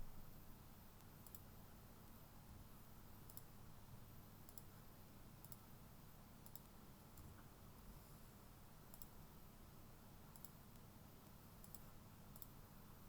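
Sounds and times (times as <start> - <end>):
low room hum: 0.0 - 13.0
computer mouse clicks: 1.0 - 1.5, 3.3 - 3.5, 4.5 - 4.7, 5.4 - 5.6, 6.4 - 7.3, 8.9 - 9.2, 10.3 - 12.6.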